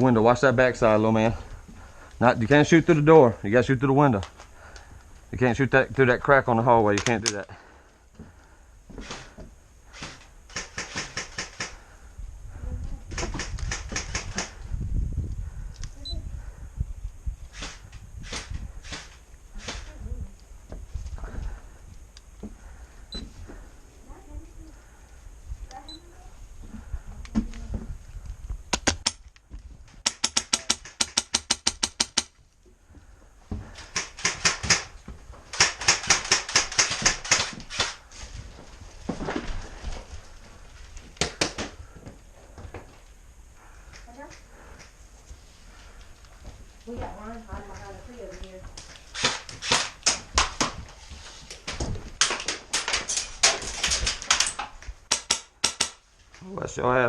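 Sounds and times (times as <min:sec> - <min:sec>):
airsoft guns firing: 0:10.0 - 0:11.8, 0:13.2 - 0:14.5, 0:30.0 - 0:32.4, 0:33.8 - 0:38.0, 0:49.1 - 0:50.8, 0:52.2 - 0:56.0
airsoft guns firing full auto: 0:10.0 - 0:11.8, 0:35.5 - 0:38.0.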